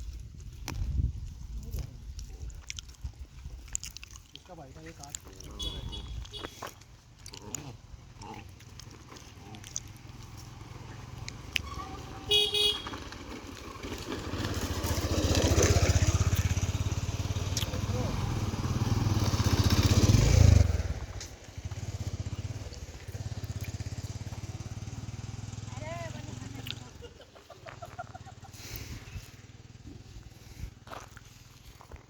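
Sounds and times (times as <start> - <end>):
motorcycle engine passing: 5.5 - 6.6, 7.7 - 31.7
vehicle horn toot: 5.5 - 6.6, 11.6 - 13.2.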